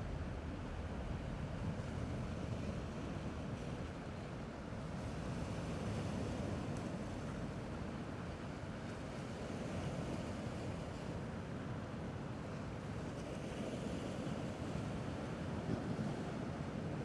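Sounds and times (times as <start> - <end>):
wind rumble on microphone: 0.0 - 11.6
gentle sea waves: 0.0 - 17.0.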